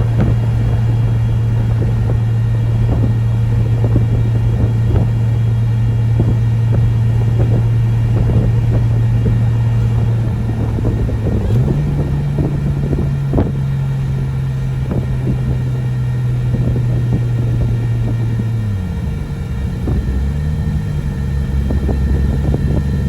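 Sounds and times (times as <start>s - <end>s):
turbocharged engine running: 0.0s - 23.0s.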